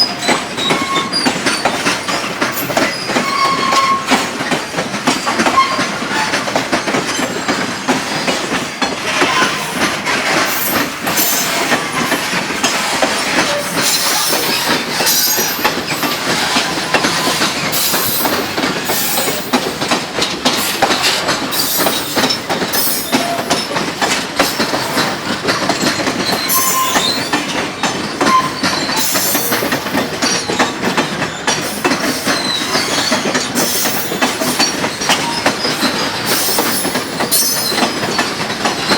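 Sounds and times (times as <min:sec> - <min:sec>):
high-pitched wheel squeals: 0:00.0 - 0:04.2, 0:05.2 - 0:06.9, 0:26.1 - 0:27.4, 0:28.1 - 0:29.7
train wheels clattering: 0:00.0 - 0:38.9.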